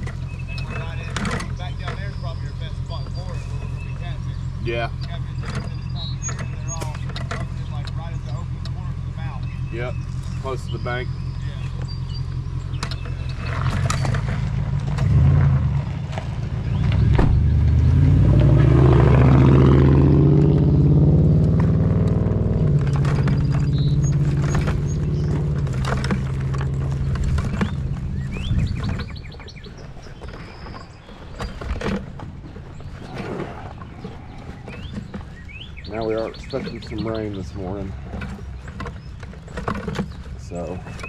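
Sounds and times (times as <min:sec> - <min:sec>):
bird chirps: 0:00.0 - 0:14.3, 0:22.8 - 0:41.0
vehicle engine running: 0:00.0 - 0:41.0.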